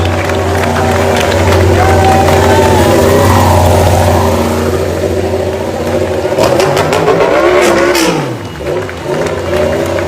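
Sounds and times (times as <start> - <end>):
engine running and revving: 0.0 - 10.0.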